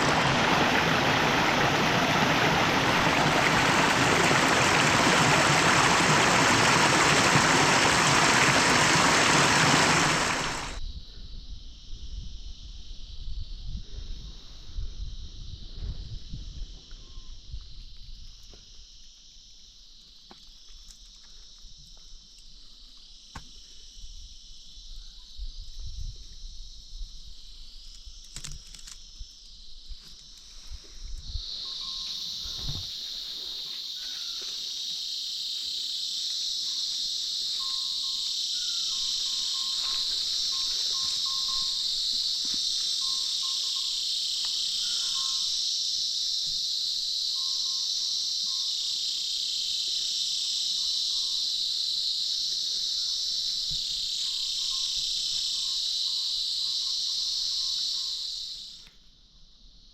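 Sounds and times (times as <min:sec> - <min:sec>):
insects shrilling: 0:00.0 - 0:10.8, 0:27.3 - 0:58.9
low thumps of wind: 0:00.0 - 0:12.6.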